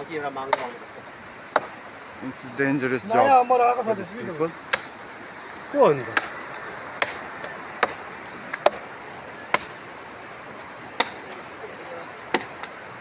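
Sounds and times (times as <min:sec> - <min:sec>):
steady background hiss: 0:00.0 - 0:13.0
hand tools striking rock: 0:00.5 - 0:00.8, 0:04.7 - 0:08.9, 0:09.5 - 0:12.7.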